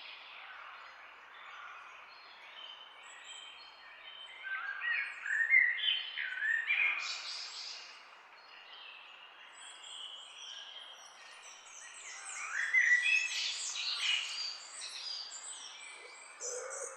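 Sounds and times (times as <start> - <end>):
songbirds chirping and twittering: 0.0 - 16.9.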